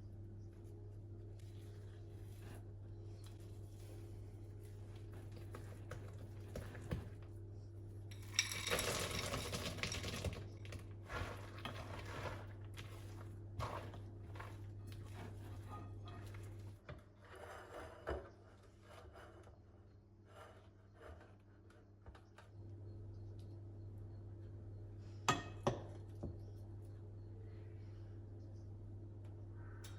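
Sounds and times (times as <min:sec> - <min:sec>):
low hum: 0:22.4 - 0:29.9.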